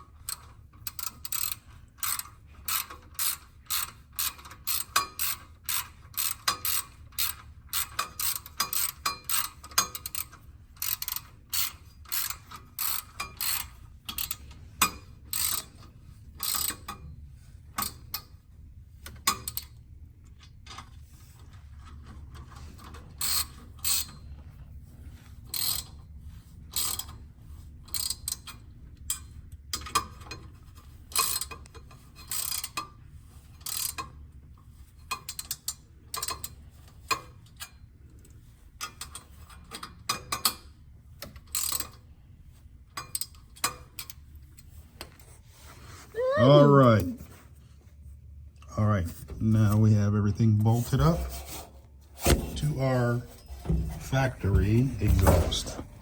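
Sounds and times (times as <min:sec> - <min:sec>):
ratchet wrench clicking: 0:00.3 - 0:14.4.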